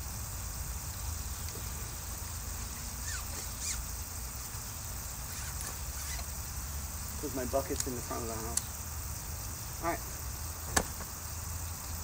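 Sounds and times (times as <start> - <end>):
bird chirps: 2.8 - 3.9.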